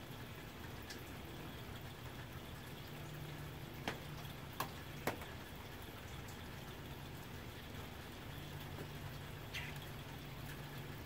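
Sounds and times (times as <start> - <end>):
rain on a tin roof: 0.0 - 11.0.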